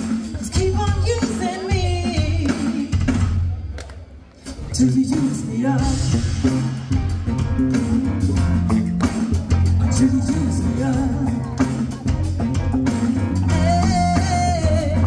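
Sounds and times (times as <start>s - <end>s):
drum kit beat: 0.0s - 3.7s, 4.4s - 15.0s
bass guitar: 4.4s - 15.0s
guitar: 4.4s - 15.0s.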